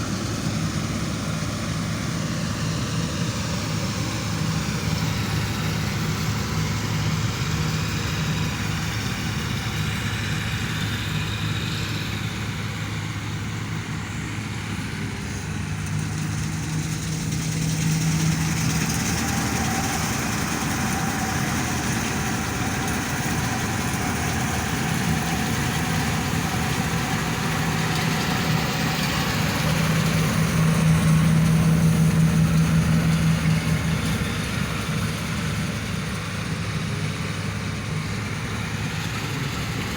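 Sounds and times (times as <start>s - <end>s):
broad rushing noise: 0.0s - 39.9s
combine harvester engine drone: 0.0s - 39.9s.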